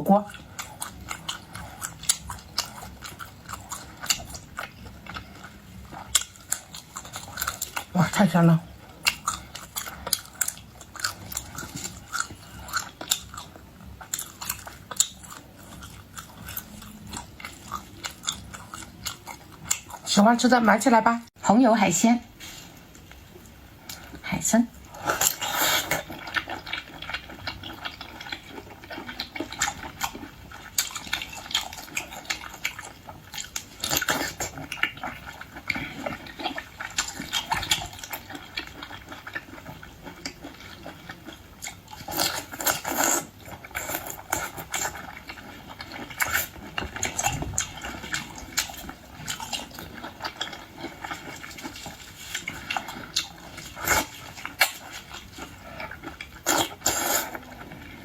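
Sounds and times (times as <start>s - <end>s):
mouth chewing and slurping: 0.2s - 20.1s, 22.3s - 58.0s.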